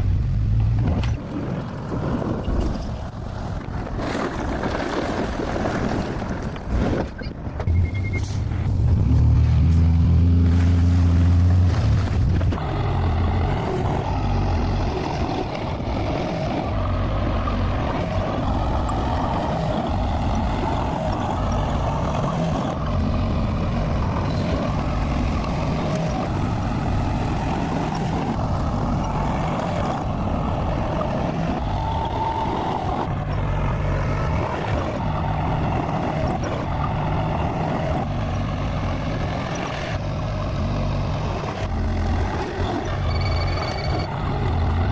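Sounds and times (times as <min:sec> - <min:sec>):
bulldozer diesel engine running: 0:06.4 - 0:44.9.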